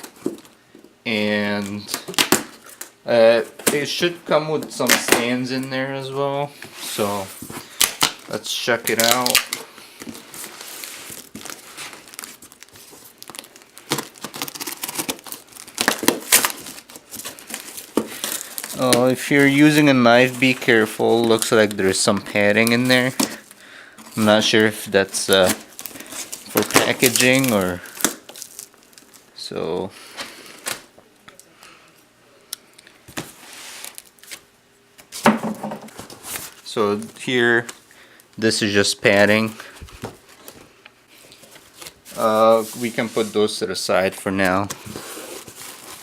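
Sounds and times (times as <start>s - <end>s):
cardboard and packaging crinkling: 6.8s - 29.3s, 39.1s - 46.0s
packing tape cut and torn: 11.2s - 19.1s.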